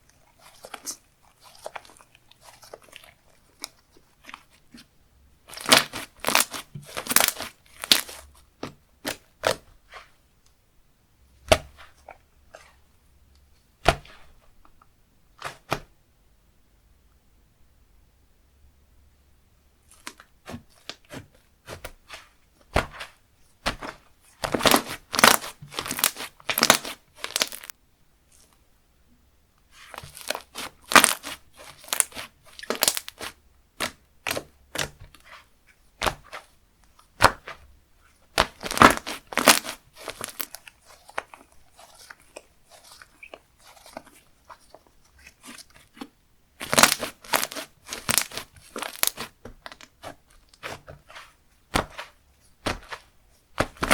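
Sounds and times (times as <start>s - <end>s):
slime squishing and crackling: 0.0s - 4.8s, 5.4s - 8.4s, 19.9s - 27.7s, 29.8s - 53.9s.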